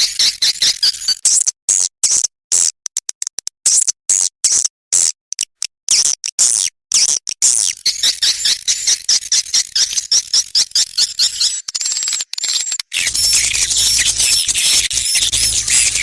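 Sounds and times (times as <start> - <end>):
swiftlets twittering: 13.0 - 16.0.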